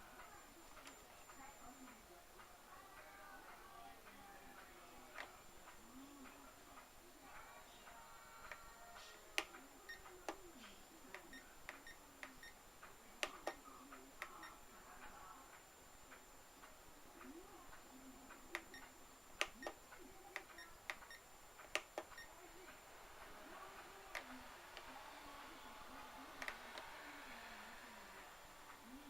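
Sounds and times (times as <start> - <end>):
sharp clicks and ticks: 15.5 - 22.3.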